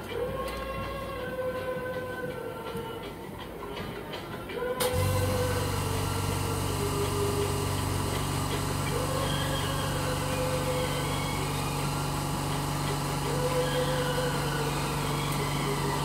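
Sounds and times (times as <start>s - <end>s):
electric machine hum: 4.8s - 16.0s.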